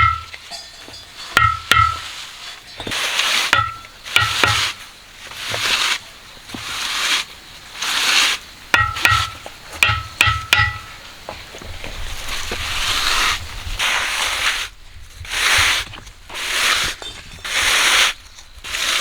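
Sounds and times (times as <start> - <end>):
sharp metallic clinks: 0.0 - 4.6, 8.8 - 11.0
shovel scraping through gravel: 0.0 - 9.8, 10.8 - 19.0.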